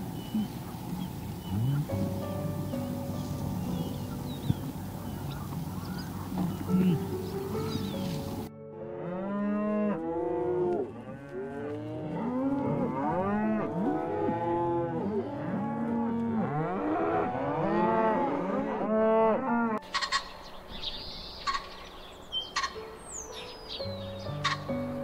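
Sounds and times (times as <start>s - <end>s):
bison lowing: 0.0s - 11.4s.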